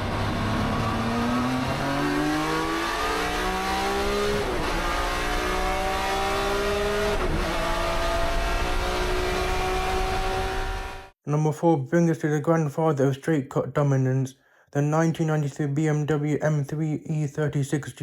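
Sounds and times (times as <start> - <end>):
race car engine accelerating: 0.0 - 11.1.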